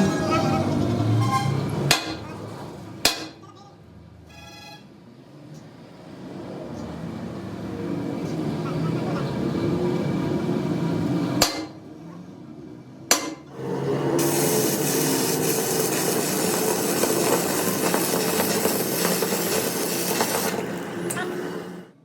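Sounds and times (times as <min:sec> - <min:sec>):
sharp metal knocks: 0:03.0 - 0:03.4, 0:11.4 - 0:11.8, 0:13.1 - 0:13.4
machine running: 0:13.5 - 0:22.0.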